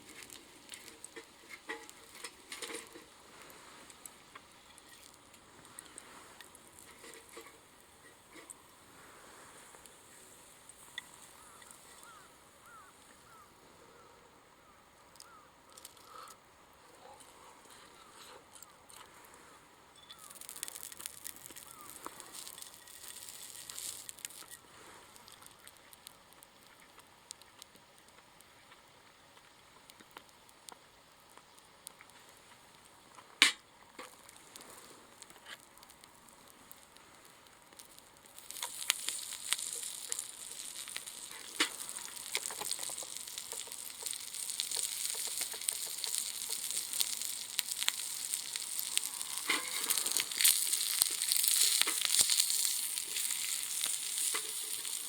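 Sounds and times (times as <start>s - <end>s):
food sizzling in a pan: 0.0s - 13.4s, 20.1s - 27.0s, 34.1s - 55.0s.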